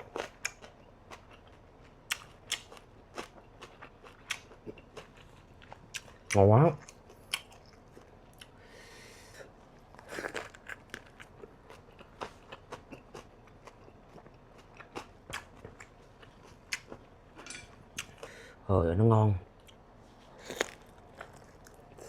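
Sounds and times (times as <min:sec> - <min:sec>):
crisp crunching while chewing: 0:09.9 - 0:17.0, 0:20.3 - 0:22.0.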